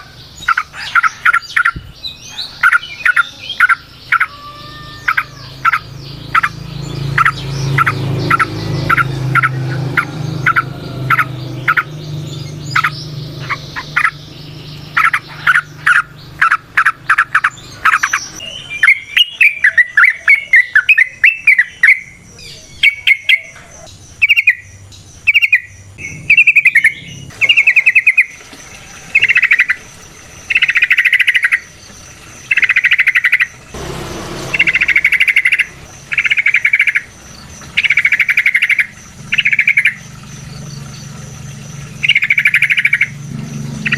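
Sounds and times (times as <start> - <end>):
bird singing: 0.0 - 43.9
low steady hum: 23.6 - 43.9.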